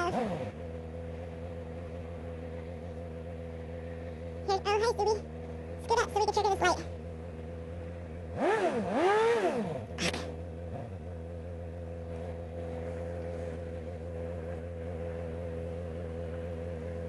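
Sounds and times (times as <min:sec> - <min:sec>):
motorcycle engine revving and idling: 0:00.0 - 0:17.0.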